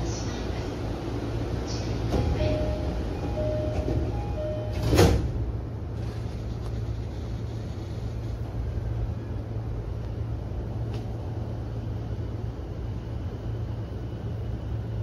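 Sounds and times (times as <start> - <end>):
stopped train humming: 0.0 - 15.0.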